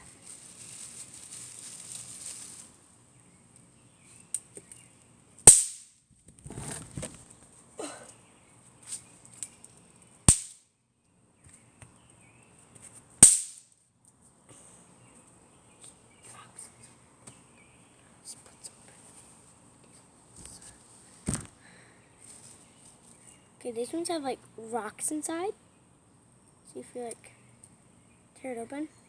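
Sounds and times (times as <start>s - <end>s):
firecrackers popping: 5.5s - 5.9s, 10.3s - 10.6s, 13.2s - 13.6s.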